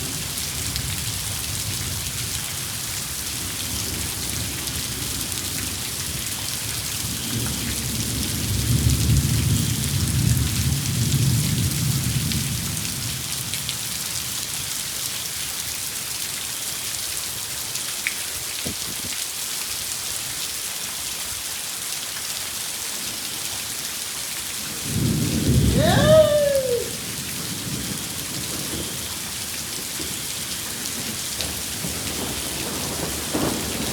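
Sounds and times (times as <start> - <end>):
heavy rain falling: 0.0 - 33.9
thunder rumbling: 24.7 - 33.9.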